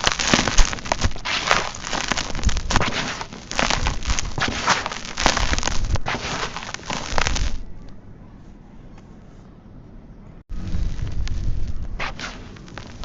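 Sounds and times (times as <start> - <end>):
sand-cement chunks crumbling: 0.0 - 7.7, 10.5 - 13.0
faint low hiss: 0.0 - 13.0.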